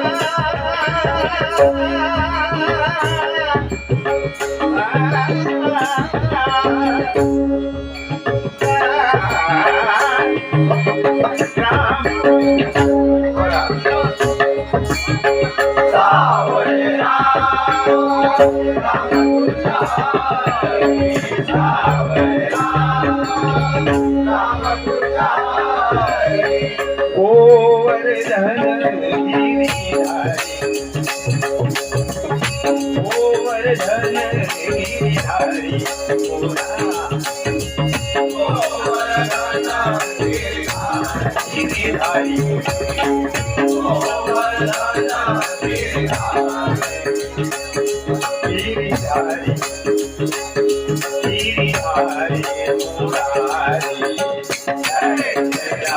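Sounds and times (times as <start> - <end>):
person singing: 0.0 - 31.7, 32.6 - 55.9
harmonium notes: 0.0 - 55.9
held melody tones: 0.0 - 55.9
hand drum beat: 29.6 - 55.9.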